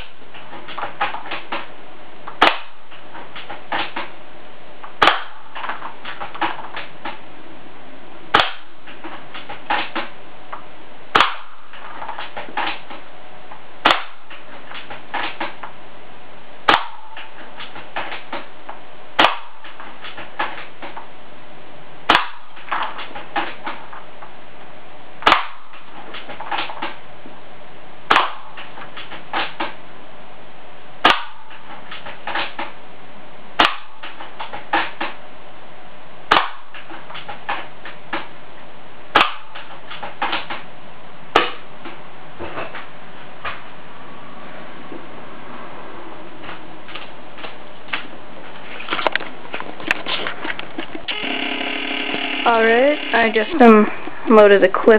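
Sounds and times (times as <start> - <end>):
airsoft rifle shots: 2.4 - 2.8, 5.0 - 6.9, 8.3 - 10.1, 11.1 - 12.9, 13.8 - 15.6, 16.7 - 18.4, 19.2 - 20.8, 22.1 - 23.8, 25.2 - 26.9, 28.1 - 29.7, 31.0 - 32.6, 33.6 - 35.1, 36.3 - 37.3, 39.1 - 40.6.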